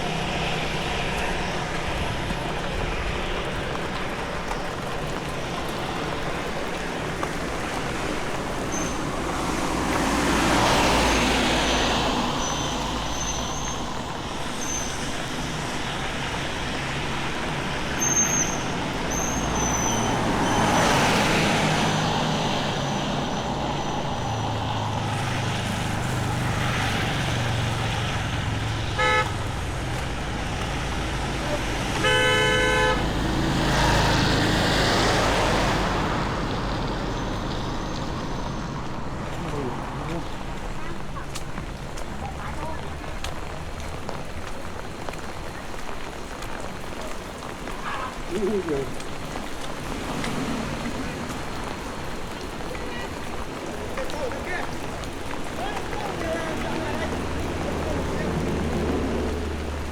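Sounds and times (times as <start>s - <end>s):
road traffic passing: 0.0s - 59.9s
car horn honking: 28.9s - 29.6s, 31.5s - 33.1s.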